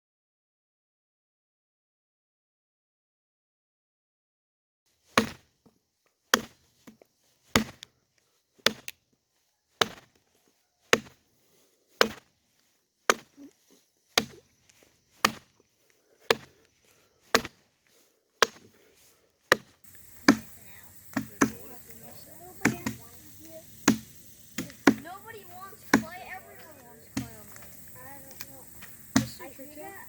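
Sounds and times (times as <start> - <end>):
axe chopping log: 5.1 - 5.7, 6.3 - 7.9, 8.6 - 9.0, 9.8 - 10.2, 10.8 - 12.4, 13.1 - 29.6.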